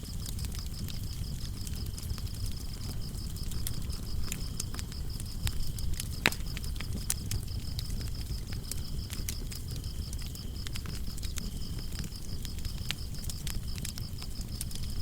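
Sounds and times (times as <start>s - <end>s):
crickets chirping: 0.0s - 15.0s
wood fire crackling and popping: 0.0s - 15.0s.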